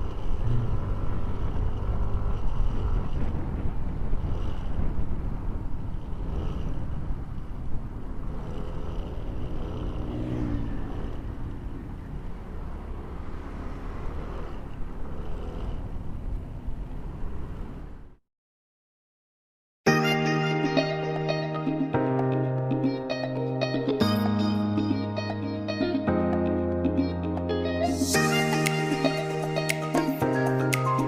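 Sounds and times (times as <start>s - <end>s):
wind rushing over microphone: 0.0s - 8.5s
motorcycle engine running: 0.0s - 16.6s.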